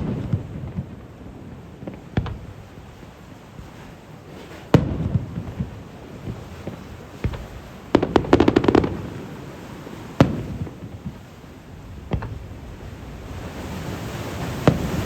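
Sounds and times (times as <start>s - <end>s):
crackling firework reports: 0.0s - 15.0s
firework shells bursting: 1.8s - 2.6s, 4.4s - 11.2s, 12.0s - 12.4s.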